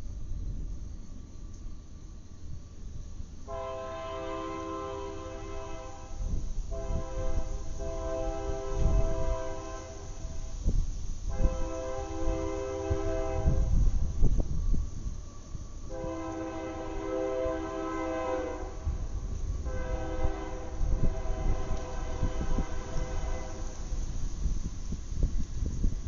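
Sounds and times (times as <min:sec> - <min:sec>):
train horn blasts: 0:03.4 - 0:10.6, 0:11.3 - 0:14.0, 0:15.8 - 0:24.0.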